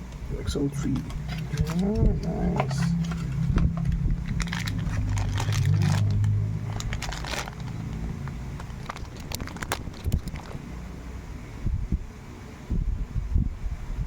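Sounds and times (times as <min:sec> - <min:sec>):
low hum: 0:00.0 - 0:12.1
plastic and cardboard crinkling: 0:00.8 - 0:10.7.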